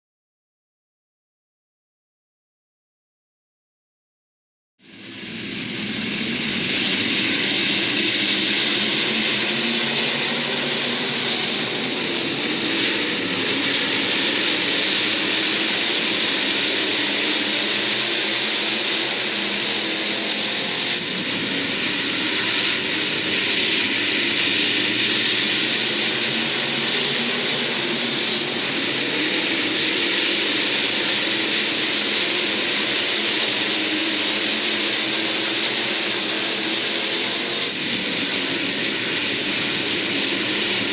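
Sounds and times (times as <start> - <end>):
race car engines running: 5.2 - 40.9.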